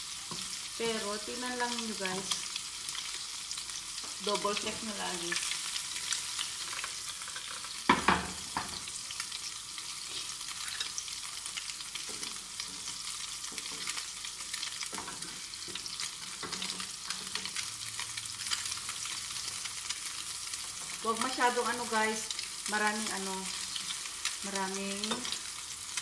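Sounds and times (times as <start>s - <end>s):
bread sizzling in butter: 0.0s - 26.0s.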